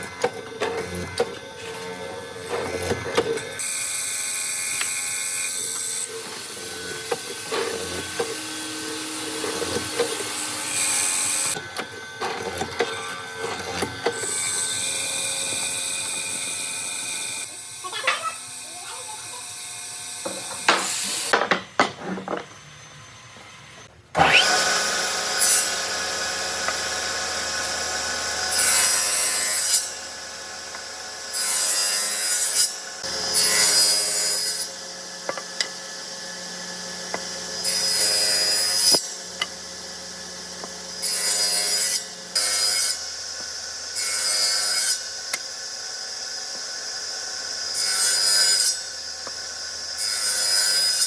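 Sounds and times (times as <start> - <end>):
power tool cutting wood: 0.0 - 51.0
knocks: 20.3 - 22.5.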